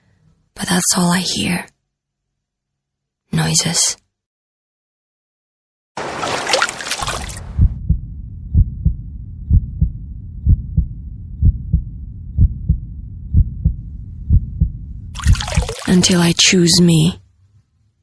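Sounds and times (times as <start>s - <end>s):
heartbeat thumps: 7.4s - 15.8s
low hum: 7.4s - 16.1s.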